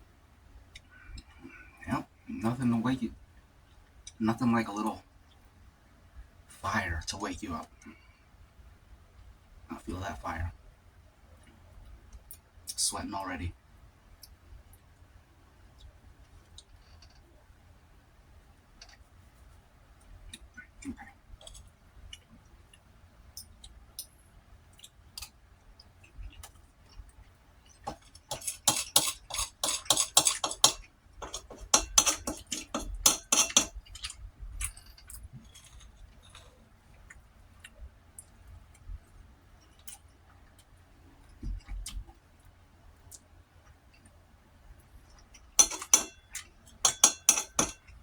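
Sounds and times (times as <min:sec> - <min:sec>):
utensil clinking on plate: 0:27.8 - 0:36.4, 0:45.6 - 0:47.9.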